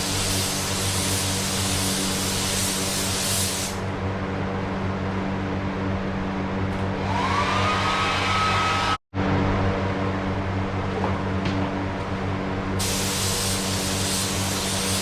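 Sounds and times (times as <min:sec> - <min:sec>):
steady machine hum: 0:03.8 - 0:14.5
rising whine: 0:06.7 - 0:10.3
hiss of rushing air: 0:12.8 - 0:15.0.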